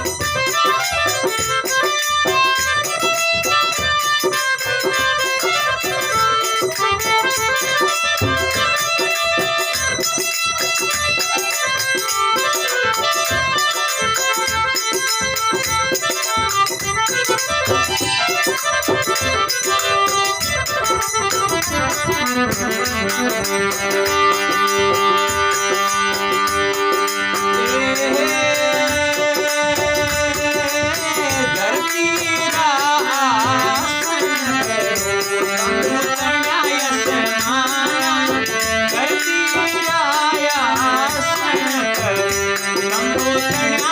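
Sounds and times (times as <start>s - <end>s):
folk melody: 0.0s - 43.9s
steady percussion beat: 0.0s - 43.9s.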